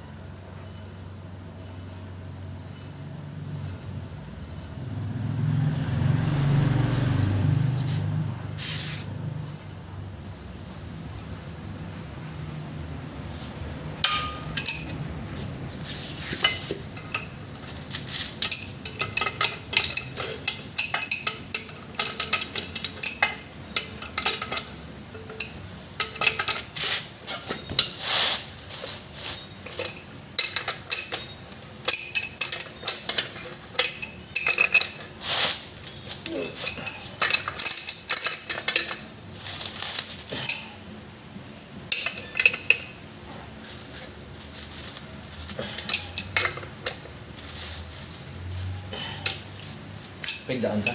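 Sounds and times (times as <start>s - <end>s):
hand tools clinking on steel: 14.0s - 40.8s, 44.7s - 50.9s.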